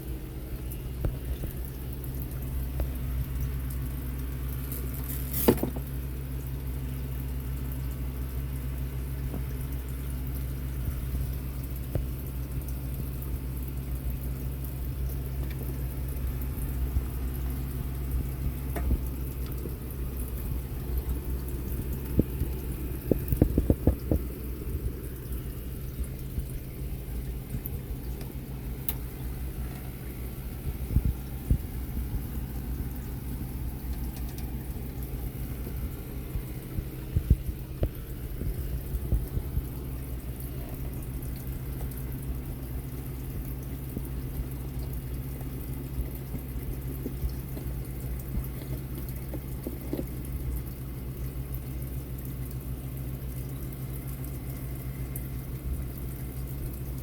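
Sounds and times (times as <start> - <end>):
steady low hum: 0.0 - 57.0
sharp clicks and knocks: 18.7 - 19.8, 21.8 - 25.0, 33.8 - 34.6.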